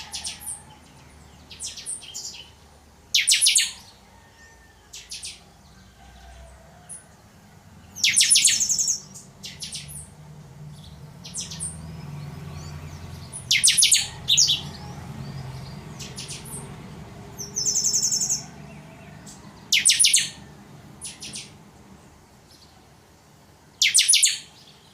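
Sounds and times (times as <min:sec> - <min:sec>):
bird singing high phrases: 0:01.4 - 0:03.9, 0:08.0 - 0:10.1, 0:10.7 - 0:16.8, 0:17.4 - 0:20.4, 0:21.0 - 0:21.6, 0:23.8 - 0:24.9.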